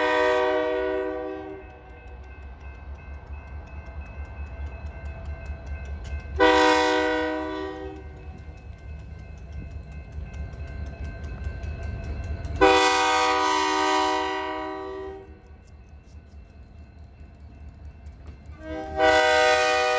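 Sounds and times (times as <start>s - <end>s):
locomotive air horn blasts: 0.0s - 1.6s, 6.4s - 8.0s, 12.6s - 15.3s, 18.6s - 19.9s
freight train rumbling: 0.0s - 19.9s.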